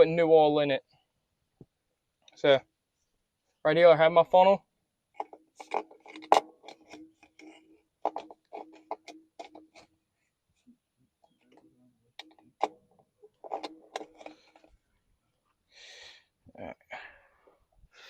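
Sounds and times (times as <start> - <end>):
plastic funnel clicks and knocks: 5.2 - 9.9, 11.4 - 14.7.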